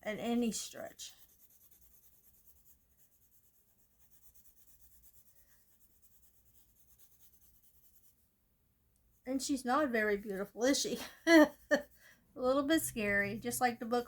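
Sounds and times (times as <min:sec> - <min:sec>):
pencil scratching on paper: 0:00.1 - 0:08.2.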